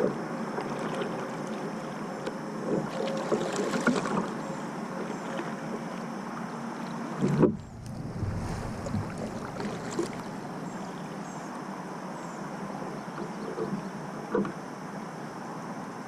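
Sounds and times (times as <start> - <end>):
wind and water hiss: 0.0 - 16.0
bump against kayak hull: 7.2 - 10.4.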